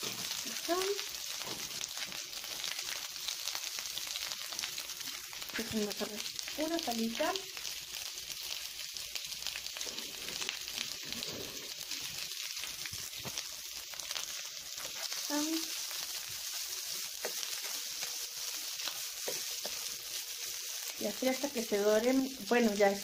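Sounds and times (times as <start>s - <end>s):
sausages sizzling in hot oil: 0.0s - 23.0s
spatula stirring in pan: 9.7s - 21.8s.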